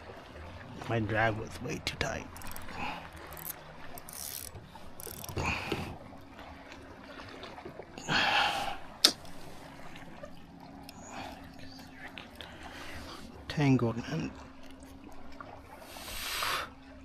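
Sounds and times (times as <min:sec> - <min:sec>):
fishing reel ratchet clicking: 0:02.3 - 0:05.4
reel handling scraping: 0:02.3 - 0:06.0.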